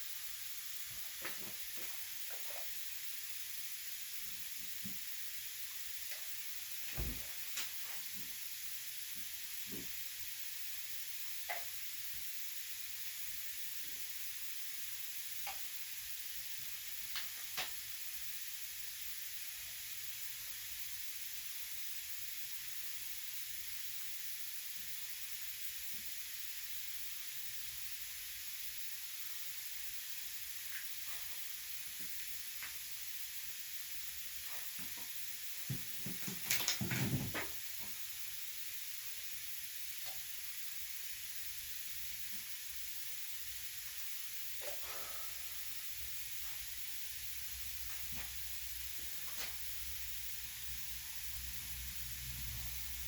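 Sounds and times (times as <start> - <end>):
steady high hiss: 0.0 - 53.0
knocks and rattles: 35.7 - 37.6.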